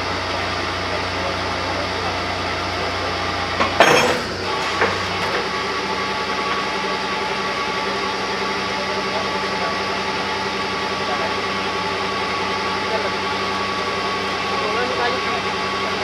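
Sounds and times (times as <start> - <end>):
drilling rig engine running: 0.0 - 16.0
loud metallic clank: 3.6 - 5.8.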